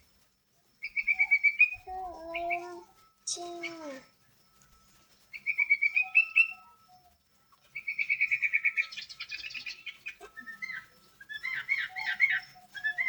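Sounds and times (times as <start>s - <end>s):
bird singing whistled trills: 0.7s - 13.0s.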